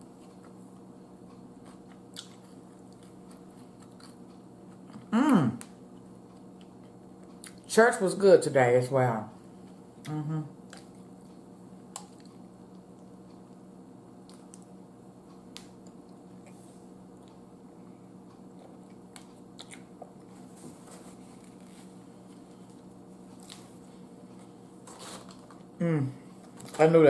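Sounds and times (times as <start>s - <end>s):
steady low hum: 0.0s - 27.0s
person chewing wet: 0.2s - 7.7s, 10.0s - 13.6s, 14.2s - 14.7s, 18.3s - 20.4s.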